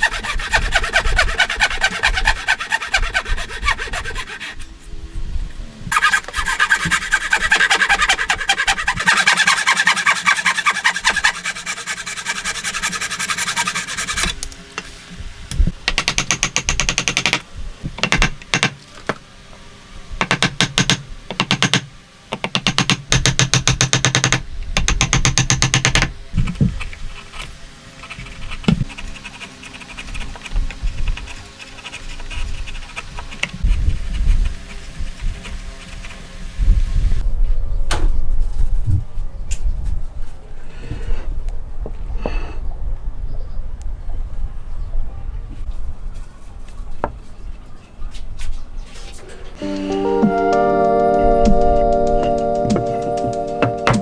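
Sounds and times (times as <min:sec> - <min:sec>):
hand tool rasping wood: 0:00.0 - 0:04.7, 0:05.9 - 0:14.4, 0:28.0 - 0:36.3.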